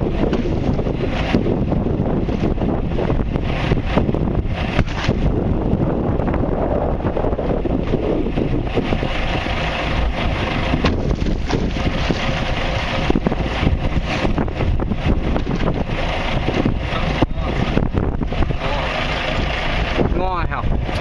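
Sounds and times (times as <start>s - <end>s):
wind buffeting microphone: 0.0s - 21.0s
knocks and thumps: 0.1s - 2.6s, 4.7s - 5.2s, 10.6s - 14.6s, 15.2s - 15.9s.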